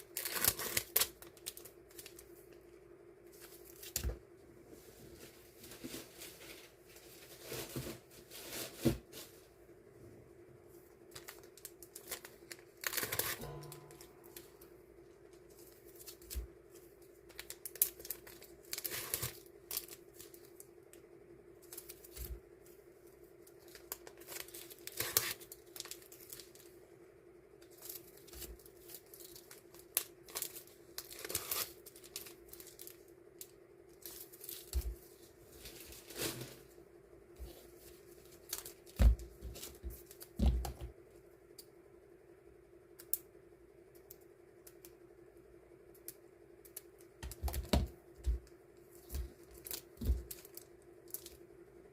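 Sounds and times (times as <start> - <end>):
stickers and packaging crinkling: 0.0 - 2.6, 3.3 - 4.2, 10.9 - 21.0, 21.6 - 26.8, 27.6 - 36.7, 37.4 - 40.9, 46.6 - 51.4
steady low hum: 1.3 - 51.9.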